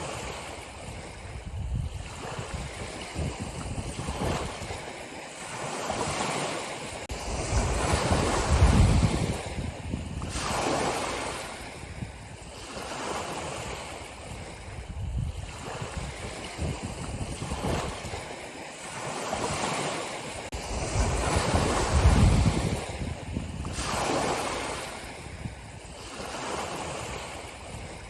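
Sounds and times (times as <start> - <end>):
ocean waves breaking on shore: 0.0 - 28.0.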